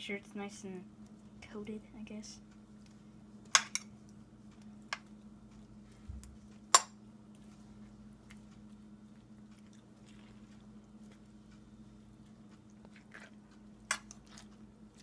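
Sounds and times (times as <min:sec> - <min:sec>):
fork stirring egg in dish: 0:09.6 - 0:15.0.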